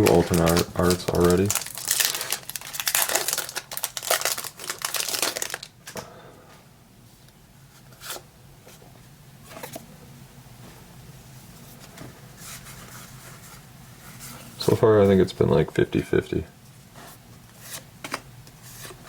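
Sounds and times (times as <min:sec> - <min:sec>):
foil wrapper crinkling and tearing: 0:00.0 - 0:05.8
card handling: 0:00.0 - 0:06.0.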